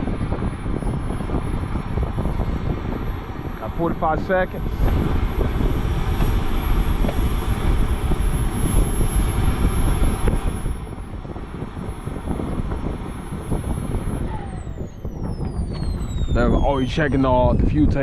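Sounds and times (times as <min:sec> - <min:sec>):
model airplane motor whine: 0:00.0 - 0:18.0
wind rumble on microphone: 0:00.0 - 0:18.0.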